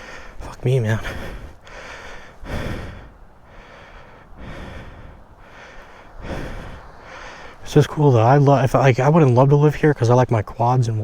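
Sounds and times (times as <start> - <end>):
man breathing heavily: 0.0 - 7.9.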